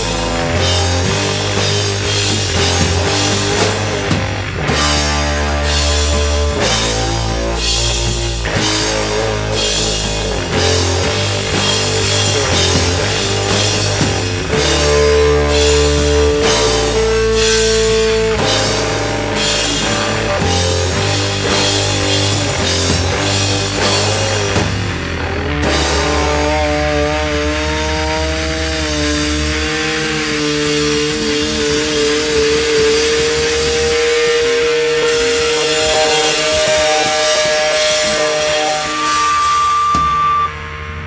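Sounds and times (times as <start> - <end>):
drum beat: 0.0 - 25.0, 30.4 - 39.4
electric guitar long note: 0.0 - 41.0
rock band playing: 0.0 - 41.0
sustained bass notes: 0.0 - 41.0.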